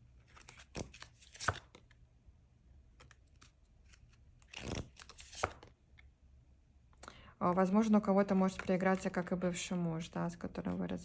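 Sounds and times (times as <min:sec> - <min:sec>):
cards tapping and rustling on table: 0:00.3 - 0:01.9, 0:04.5 - 0:05.7.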